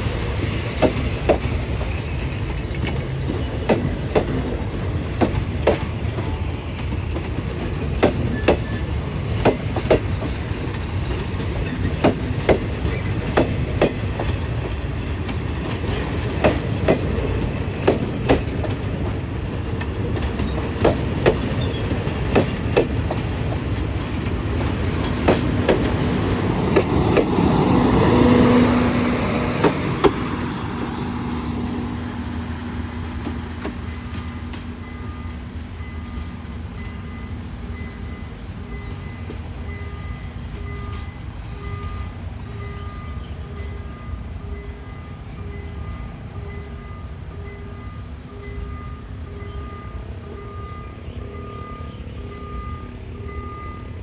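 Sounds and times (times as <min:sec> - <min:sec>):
train wheels clacking over rail joints: 0:00.0 - 0:42.2
train rumble: 0:00.0 - 0:54.0.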